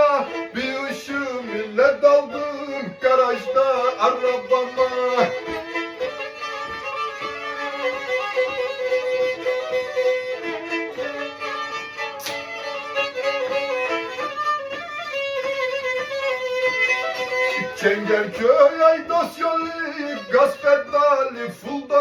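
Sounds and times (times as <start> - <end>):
bowed string instrument: 0.0 - 22.0
sharp click: 12.2 - 12.6.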